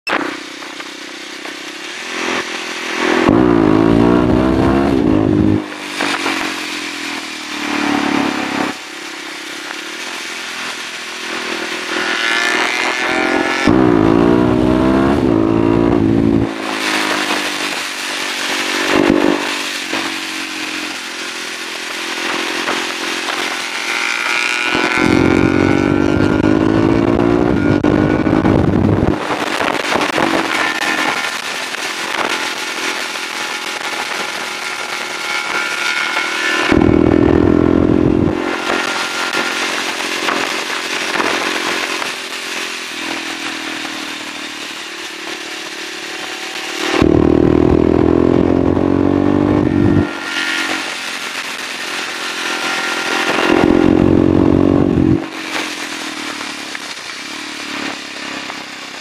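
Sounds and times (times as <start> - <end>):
motorcycle engine accelerating hard: 0.1 - 59.0
wind noise on microphone: 13.7 - 17.9, 24.8 - 32.4, 36.6 - 42.1, 46.9 - 50.2, 53.2 - 55.5.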